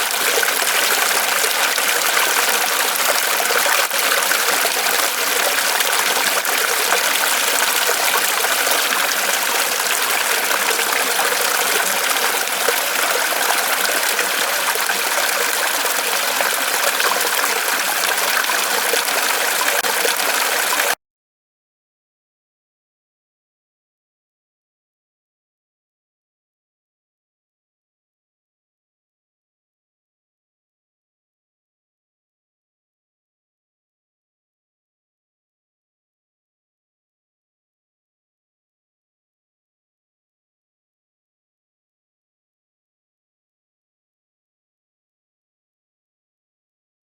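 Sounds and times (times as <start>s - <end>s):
water trickling and splashing: 0.0s - 21.0s.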